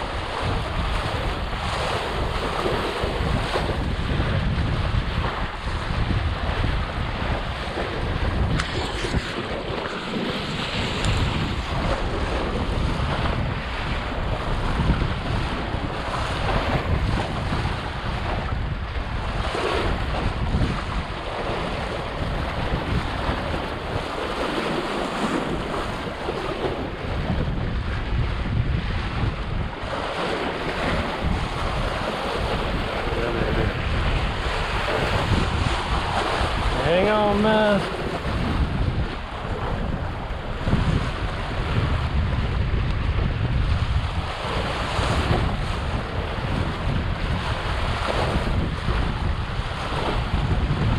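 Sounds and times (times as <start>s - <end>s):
water splashing and rushing: 0.0s - 50.9s
wind buffeting microphone: 0.0s - 50.9s.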